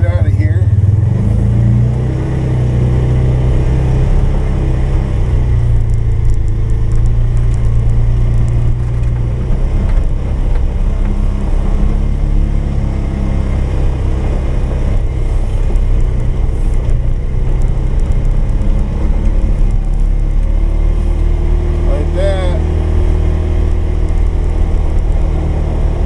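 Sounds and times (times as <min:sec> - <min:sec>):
atv engine running under load: 0:00.0 - 0:26.0.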